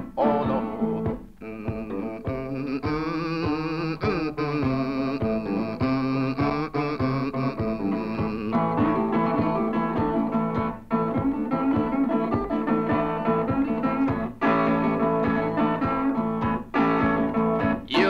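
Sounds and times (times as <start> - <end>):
instrumental folk-blues guitar: 0.0 - 18.0.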